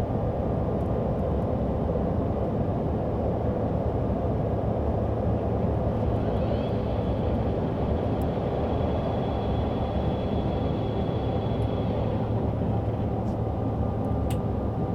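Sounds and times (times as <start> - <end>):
airplane cabin drone: 2.7 - 14.9
faint high whine: 5.7 - 13.6.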